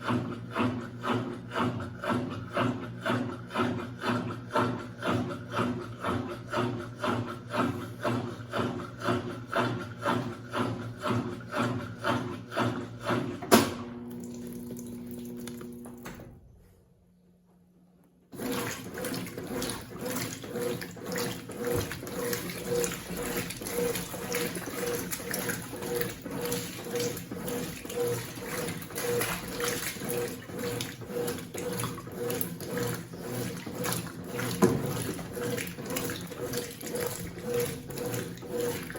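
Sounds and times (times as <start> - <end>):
washing machine agitating: 0.0 - 16.6, 18.3 - 38.9
water running into tub: 14.0 - 16.2, 18.3 - 38.9.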